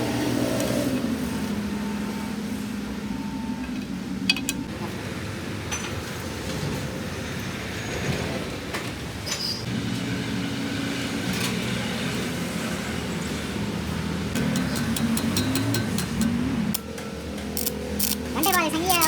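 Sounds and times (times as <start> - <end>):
engine hum: 9.6 - 19.0.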